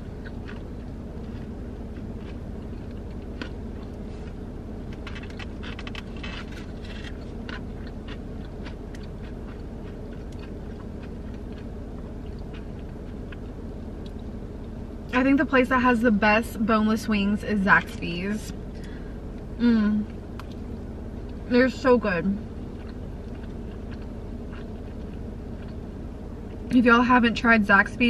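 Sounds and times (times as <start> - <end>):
chewing: 0.0 - 14.8, 22.4 - 26.7
steady low hum: 0.0 - 28.0.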